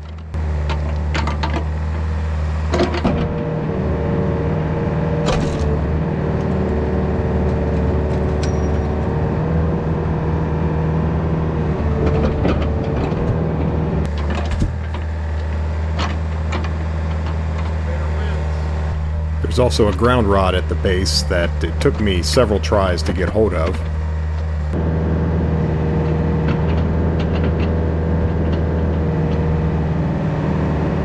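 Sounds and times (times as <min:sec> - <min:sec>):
excavator diesel engine under load: 0:18.9 - 0:24.1
steady whine: 0:19.0 - 0:24.1.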